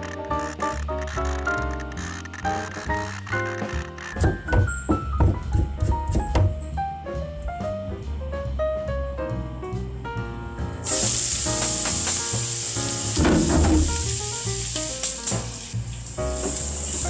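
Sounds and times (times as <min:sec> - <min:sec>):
background music: 0:00.0 - 0:17.0
food sizzling in hot oil: 0:10.8 - 0:17.0.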